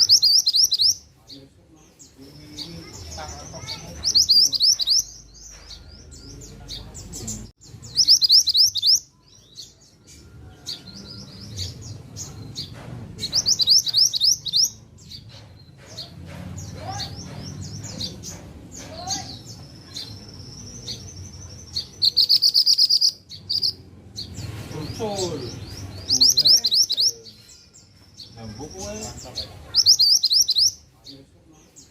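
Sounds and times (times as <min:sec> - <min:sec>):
soft bird chirps: 0:00.0 - 0:31.9
songbird trilling: 0:00.0 - 0:31.9.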